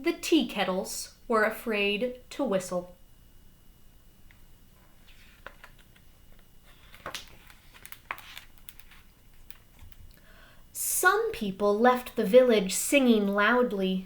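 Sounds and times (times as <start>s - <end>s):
paper rustling: 4.9s - 10.1s.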